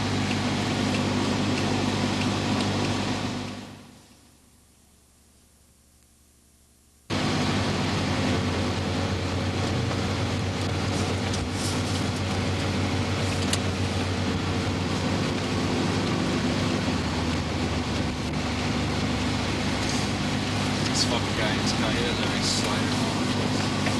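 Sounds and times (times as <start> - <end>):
car engine idling: 0.0 - 4.4, 7.1 - 23.9.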